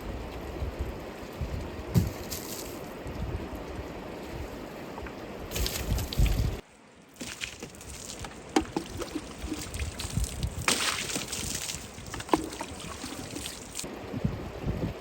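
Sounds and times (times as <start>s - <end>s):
water sloshing and trickling: 3.6s - 13.9s.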